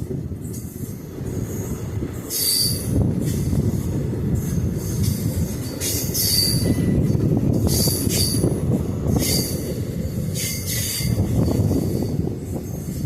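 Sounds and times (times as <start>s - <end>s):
train wheels rumbling on rail: 0.0s - 13.0s
high-pitched wheel squeals: 2.3s - 3.0s, 5.7s - 6.9s.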